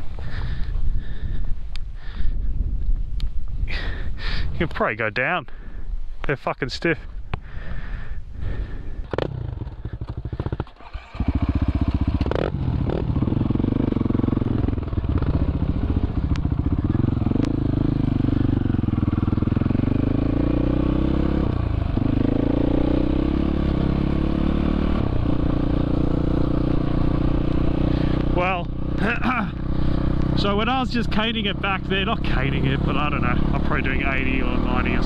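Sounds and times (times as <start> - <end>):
dirt bike engine revving: 9.0 - 35.0.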